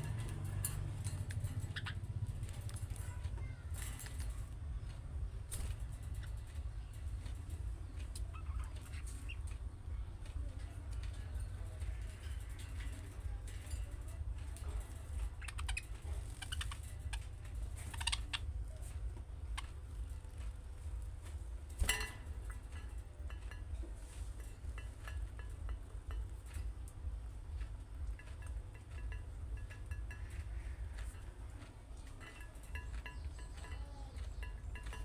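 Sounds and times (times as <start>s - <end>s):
steady low rumble: 0.0s - 35.0s
budgerigars chattering: 1.5s - 2.5s, 14.9s - 20.3s.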